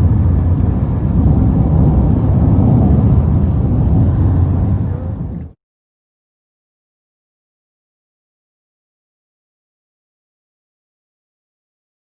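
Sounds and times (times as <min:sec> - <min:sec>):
car interior rumble: 0:00.0 - 0:05.6.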